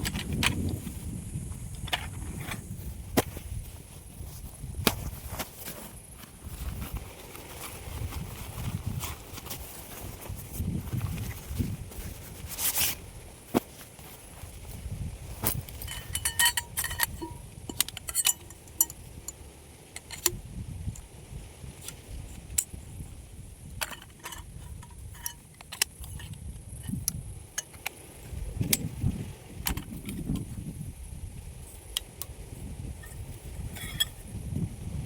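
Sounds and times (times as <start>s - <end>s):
clicks and metallic clinks: 15.4s - 21.0s, 23.8s - 28.0s, 33.0s - 34.2s.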